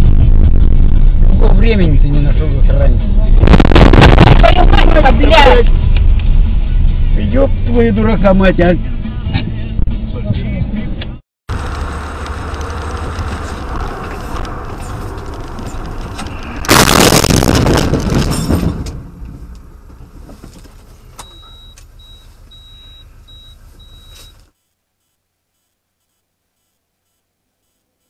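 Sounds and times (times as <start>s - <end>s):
car road and engine noise: 0.0s - 24.6s
car collision crash: 16.4s - 19.5s
short high beeps: 21.2s - 27.8s.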